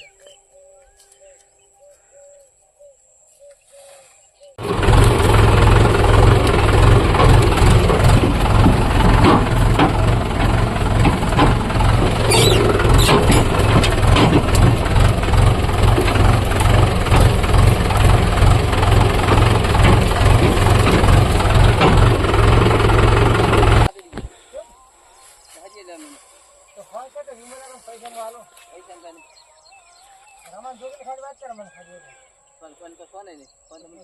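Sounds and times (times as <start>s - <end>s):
sharp clicks or rattles: 4.6s - 23.9s
tractor diesel engine running: 4.6s - 23.9s.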